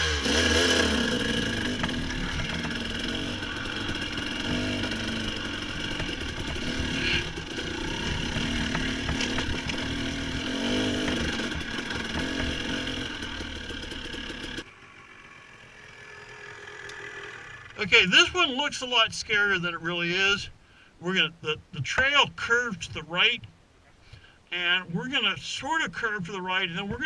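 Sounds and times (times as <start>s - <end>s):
dirt bike engine revving: 0.0s - 19.6s.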